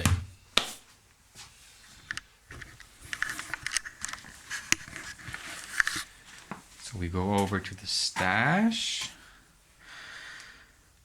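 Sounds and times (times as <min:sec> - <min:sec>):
handling clicks and light knocks: 0:02.0 - 0:08.4.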